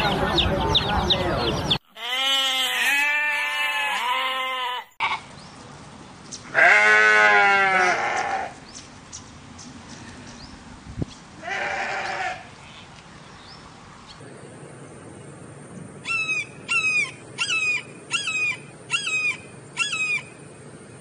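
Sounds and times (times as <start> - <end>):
sheep bleating: 1.9 - 5.2, 6.5 - 8.6, 11.4 - 12.5.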